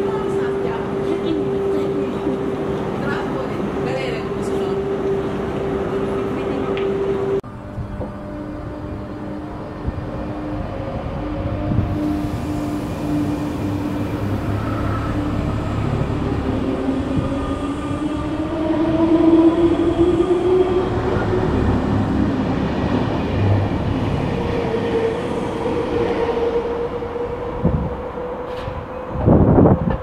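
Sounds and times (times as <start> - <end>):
wheels rumbling on rails: 0.0 - 30.0.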